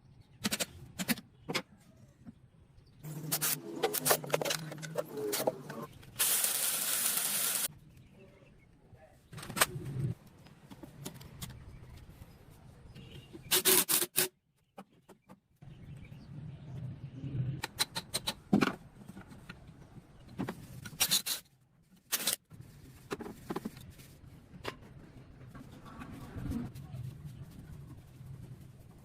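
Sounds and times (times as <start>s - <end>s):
metallic clicks and scrapes of tools: 20.8s - 22.4s.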